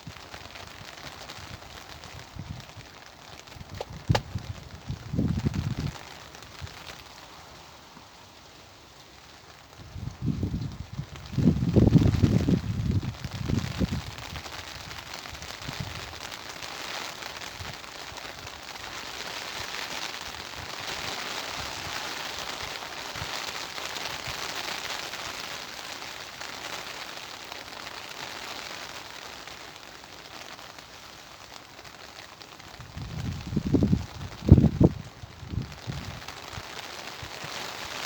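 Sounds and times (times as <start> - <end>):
steady rain patter: 0.0 - 38.0
wind buffeting microphone: 3.6 - 6.0, 9.8 - 14.4, 32.8 - 36.3.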